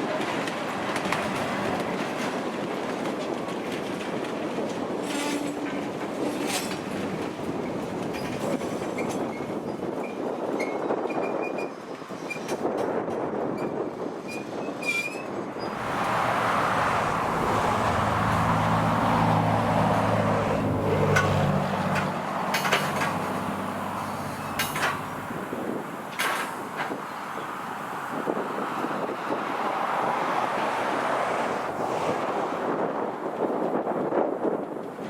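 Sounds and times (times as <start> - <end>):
freight train cars rumbling: 0.0 - 35.0
wheel squeals: 13.6 - 18.6, 22.0 - 25.3
low engine drone: 15.8 - 25.4.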